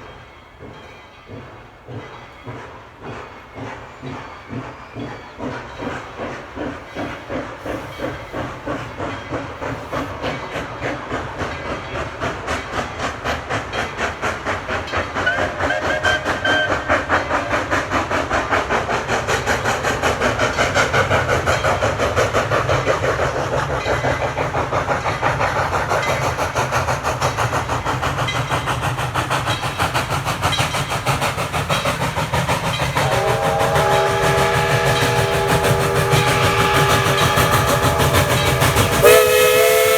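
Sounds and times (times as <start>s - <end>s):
steam locomotive exhaust chuffs: 0.0s - 39.9s
steam whistle chord: 33.0s - 39.9s.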